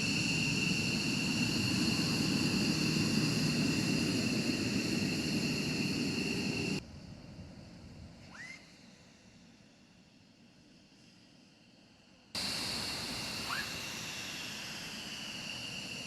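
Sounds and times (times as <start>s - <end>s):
jet engine whine and rumble: 0.0s - 16.0s
faint hiss: 6.2s - 16.0s
short rising whistle: 8.3s - 8.8s, 13.2s - 16.0s.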